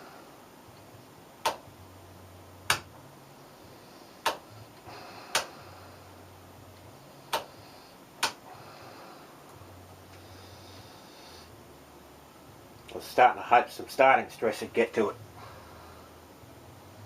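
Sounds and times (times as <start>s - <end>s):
low transformer hum: 0.0s - 17.0s.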